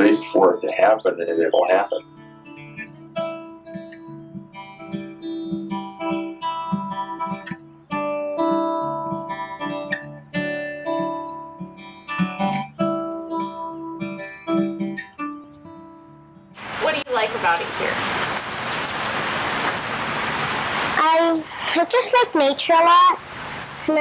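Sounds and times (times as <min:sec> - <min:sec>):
acoustic guitar picking: 0:00.0 - 0:17.4.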